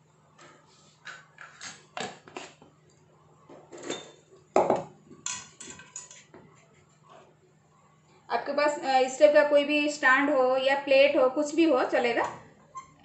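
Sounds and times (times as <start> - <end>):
spoon clinking on pan: 5.2 - 6.3.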